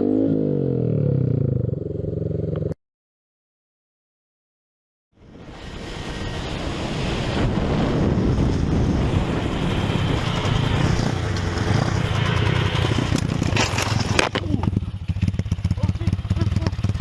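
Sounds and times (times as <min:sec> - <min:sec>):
motorcycle engine running: 0:00.7 - 0:02.8, 0:09.3 - 0:17.0
wind and road noise: 0:05.1 - 0:17.0.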